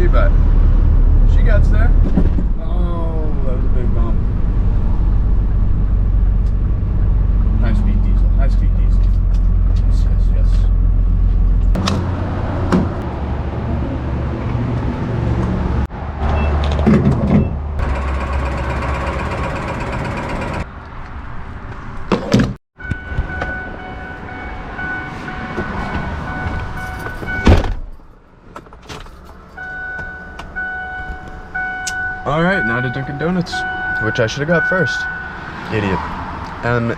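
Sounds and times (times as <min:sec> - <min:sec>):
diesel engine pulling: 0:00.0 - 0:20.7
road noise: 0:00.0 - 0:36.9
high beeping tone: 0:29.6 - 0:35.5.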